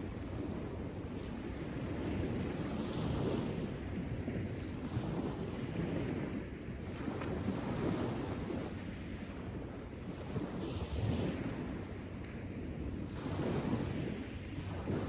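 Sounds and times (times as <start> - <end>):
wind buffeting microphone: 12.6 - 15.0.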